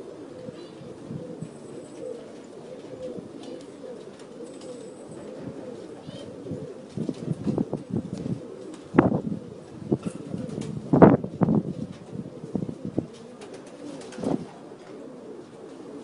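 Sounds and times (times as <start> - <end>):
birds cooing: 0.0 - 16.0.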